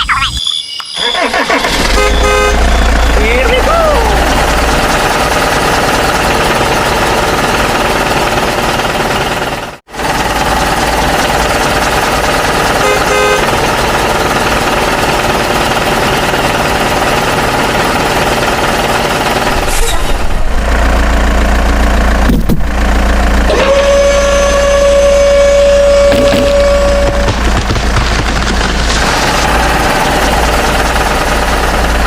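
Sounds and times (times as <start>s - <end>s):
strong steady tone: 22.2s - 27.6s.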